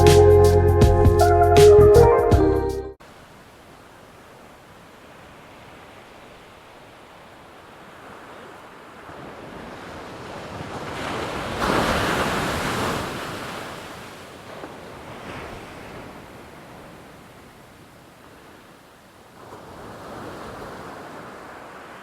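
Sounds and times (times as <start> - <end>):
ocean wave breaking: 5.1 - 16.3.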